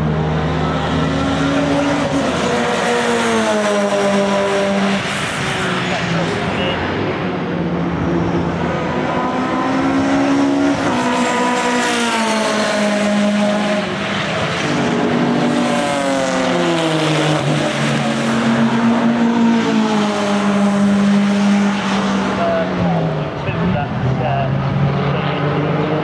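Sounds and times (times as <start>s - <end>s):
racing car engines accelerating: 0.0s - 26.0s.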